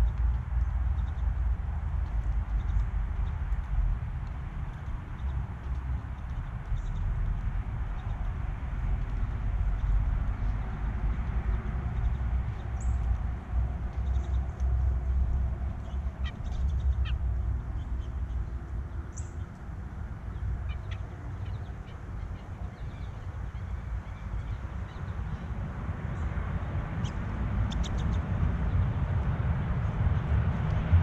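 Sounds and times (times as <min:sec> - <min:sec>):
steady low rumble: 0:00.0 - 0:31.0
birds calling: 0:15.6 - 0:25.6.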